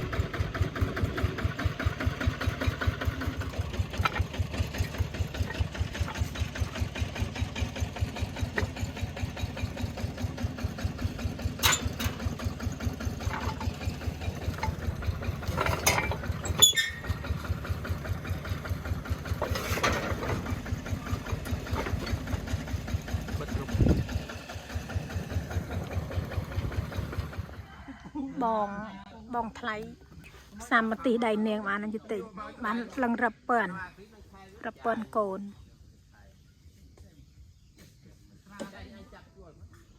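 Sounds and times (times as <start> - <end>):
engine running: 0.0 - 27.7.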